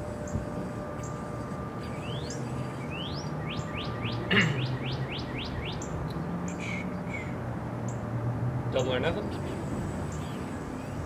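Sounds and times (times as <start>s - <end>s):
songbird singing whistled notes: 1.9s - 8.0s.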